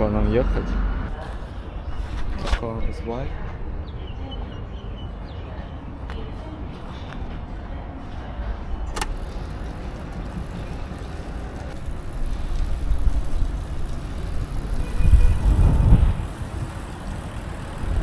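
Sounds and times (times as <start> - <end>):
passing motor traffic: 0.0 - 2.5, 3.1 - 18.0
wind rumble: 8.4 - 18.0
sharp click: 8.9 - 9.2.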